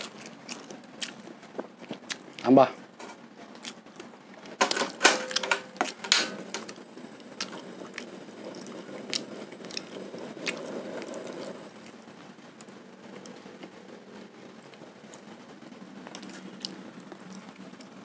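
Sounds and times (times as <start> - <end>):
wet smacking chewing: 0.0 - 2.5, 3.5 - 4.6, 6.7 - 12.0.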